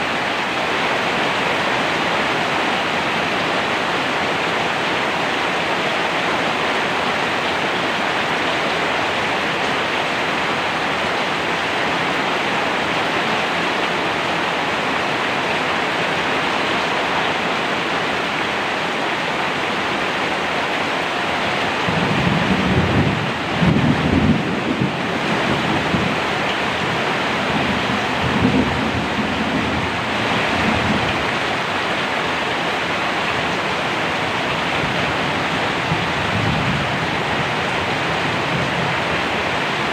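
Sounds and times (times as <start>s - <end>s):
heavy rain pouring: 0.0s - 39.9s
rolling thunder rumbles: 21.8s - 31.2s.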